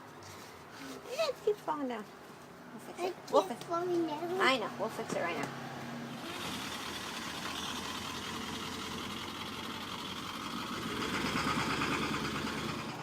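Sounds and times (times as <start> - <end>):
small motor running: 6.1 - 13.0.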